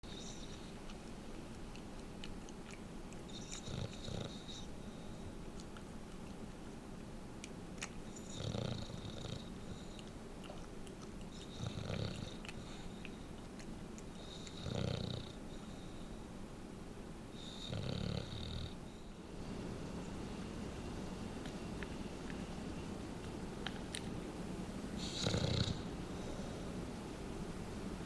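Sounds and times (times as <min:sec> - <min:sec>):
dog snoring: 0:00.0 - 0:00.8, 0:03.3 - 0:05.3, 0:08.1 - 0:10.6, 0:11.3 - 0:13.2, 0:14.2 - 0:16.0, 0:17.3 - 0:19.1, 0:25.0 - 0:26.6.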